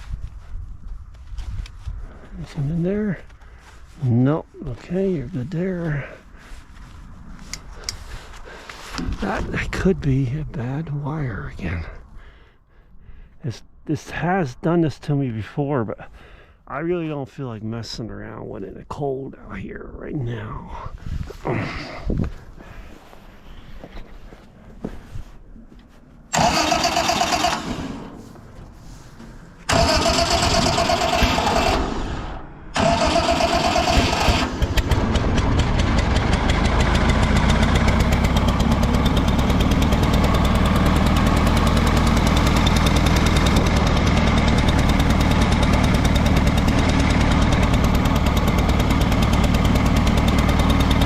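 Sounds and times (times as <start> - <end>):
man talking: 2.3 - 3.3, 4.0 - 6.2, 9.0 - 12.1, 13.4 - 22.0
tractor engine idling: 2.3 - 12.1, 26.2 - 51.0
electric starter whining: 26.3 - 28.5, 29.2 - 51.0.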